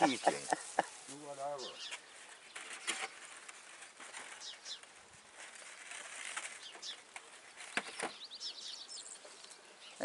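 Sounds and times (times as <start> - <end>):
steady background hiss: 0.0 - 5.5.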